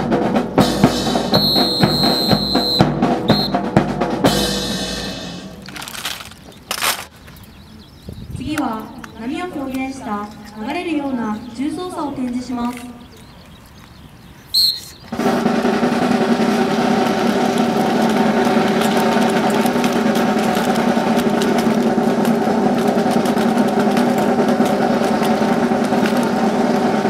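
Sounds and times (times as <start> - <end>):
snare drum roll: 0.0 - 5.8, 15.1 - 27.0
high whistle blast: 1.3 - 3.6, 14.5 - 15.1.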